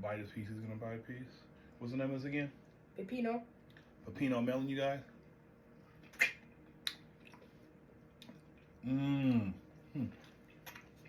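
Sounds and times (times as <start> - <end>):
wet mouth clicks: 6.0 - 7.5, 10.2 - 11.0
person humming mmm: 8.8 - 10.3.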